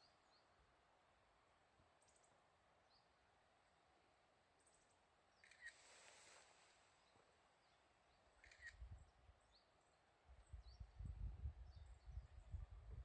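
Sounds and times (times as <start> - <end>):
wind buffeting microphone: 10.4 - 13.0.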